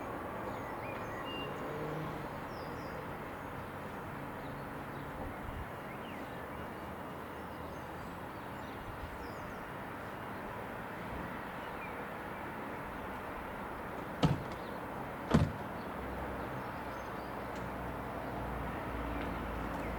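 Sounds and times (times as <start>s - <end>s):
outdoor background rumble: 13.7s - 17.6s.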